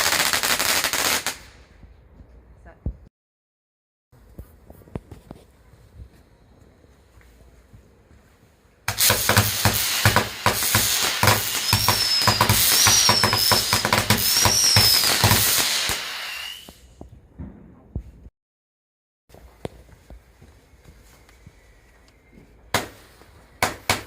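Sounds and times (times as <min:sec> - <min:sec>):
fireworks crackling bangs: 0:00.0 - 0:01.7, 0:08.9 - 0:17.8
fireworks hissing spray: 0:08.9 - 0:16.9
falling firework whistle: 0:08.9 - 0:17.0
high warbling firework whistles: 0:09.0 - 0:17.0.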